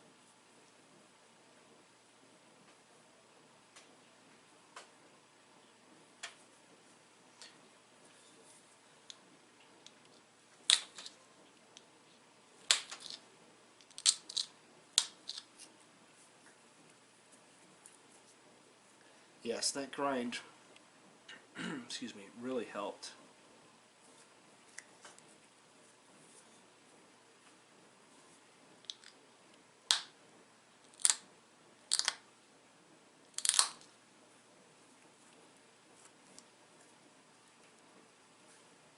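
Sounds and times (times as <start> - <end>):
stone flakes snapping off: 10.7 - 11.1, 12.7 - 13.2, 13.8 - 15.5, 29.9 - 30.1, 30.9 - 31.2, 31.9 - 32.2, 33.4 - 33.9.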